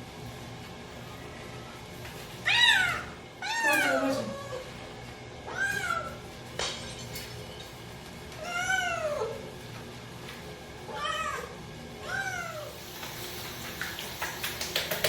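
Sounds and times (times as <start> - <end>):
cat meowing: 2.4 - 4.6, 5.5 - 6.2, 10.9 - 12.7.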